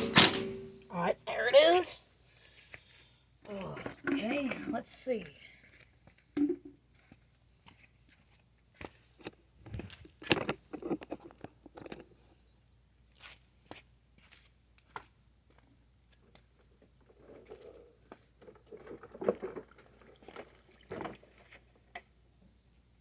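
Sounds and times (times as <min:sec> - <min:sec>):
knocks and clicks: 0:00.0 - 0:00.9.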